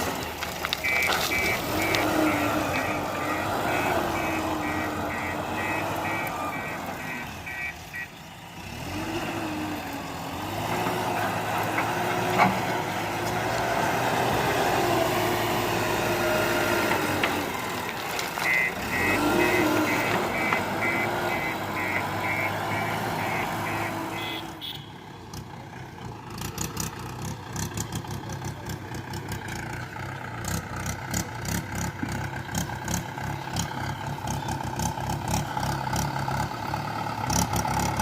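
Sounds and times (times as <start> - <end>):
diesel engine revving: 0.0 - 38.0
reversing alarm beeping: 0.8 - 8.1, 18.4 - 24.4.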